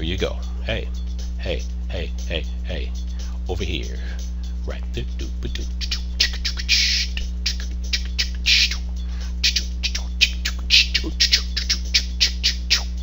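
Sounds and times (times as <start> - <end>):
low electrical hum: 0.0 - 13.0
high-pitched chirps or clicks: 5.5 - 13.0.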